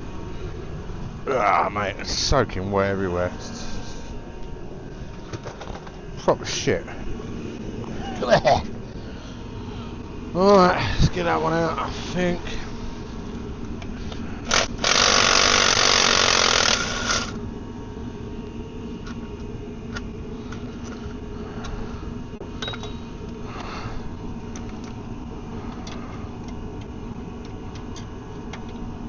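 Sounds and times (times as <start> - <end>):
power tool spinning out bolt: 14.5 - 17.4.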